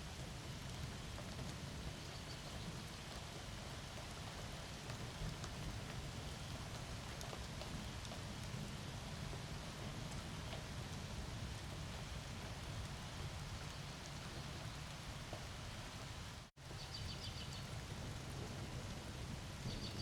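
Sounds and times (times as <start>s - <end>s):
steady rain hiss: 0.0s - 20.0s
low thunder rumble: 17.2s - 20.0s.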